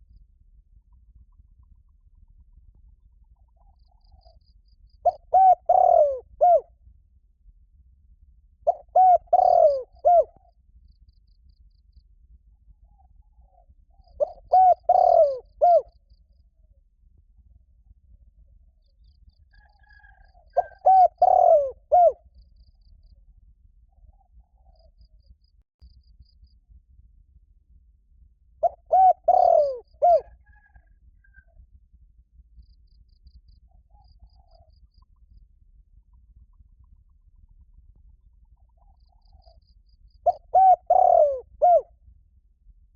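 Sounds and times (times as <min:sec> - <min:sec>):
dove cooing: 0:05.0 - 0:06.6, 0:08.7 - 0:10.4, 0:13.4 - 0:15.9, 0:19.6 - 0:22.2, 0:28.6 - 0:30.9, 0:40.2 - 0:41.9.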